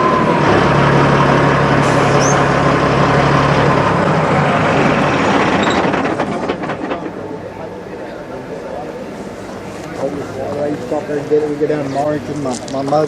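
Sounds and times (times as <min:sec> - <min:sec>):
truck passing: 0:00.0 - 0:07.0.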